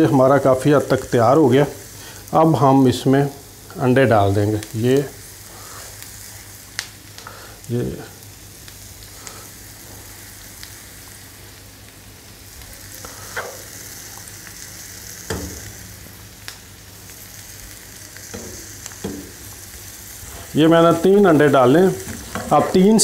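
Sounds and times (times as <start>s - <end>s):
vegetables sizzling in a pan: 0.0s - 23.0s
light knocks on pan: 15.3s - 15.6s, 18.4s - 19.3s.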